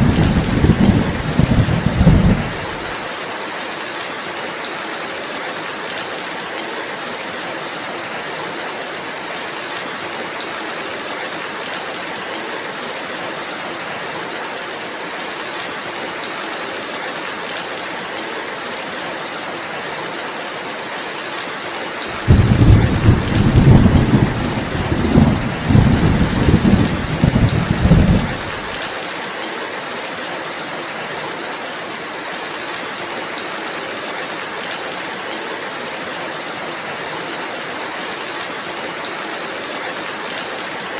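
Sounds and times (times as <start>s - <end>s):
thunder rolling: 0.0s - 3.0s, 22.2s - 28.8s
rain hissing: 0.0s - 3.1s, 22.1s - 29.1s.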